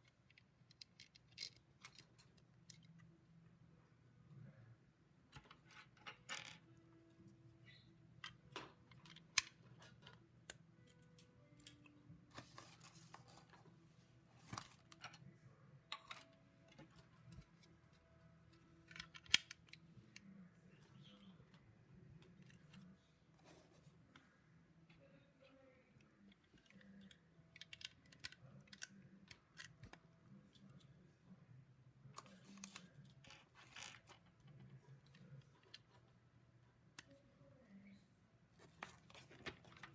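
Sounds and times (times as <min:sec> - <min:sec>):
plastic bricks clicking and rattling: 0:00.2 - 0:02.9.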